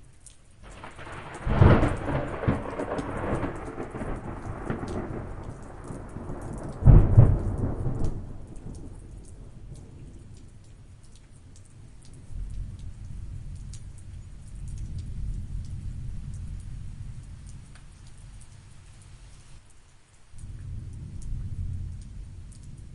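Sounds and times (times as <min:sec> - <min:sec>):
raindrop ticks: 0:00.0 - 0:22.9
steady rain: 0:00.0 - 0:22.9
thunderclap: 0:00.6 - 0:10.4
distant thunder rumbles: 0:00.6 - 0:10.6, 0:11.8 - 0:19.6, 0:20.4 - 0:22.9.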